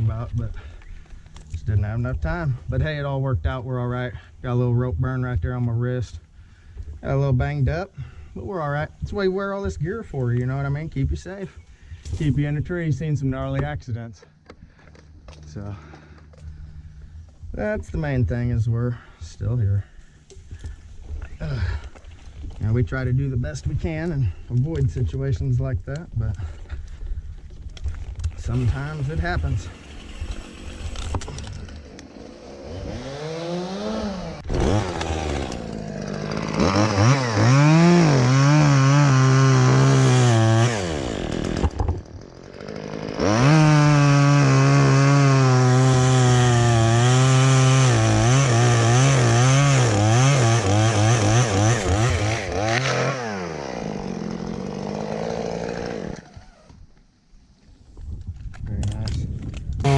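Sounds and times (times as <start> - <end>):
chainsaw cutting wood: 27.8 - 56.9.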